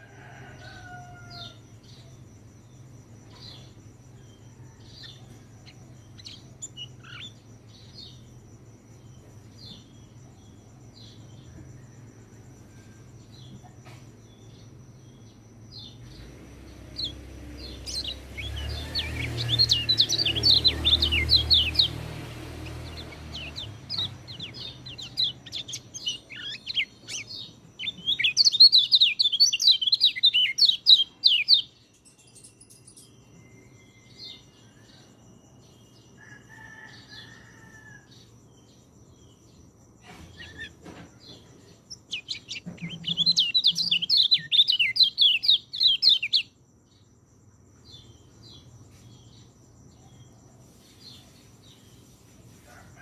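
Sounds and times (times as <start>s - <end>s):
thrush singing: 16.3s - 25.9s.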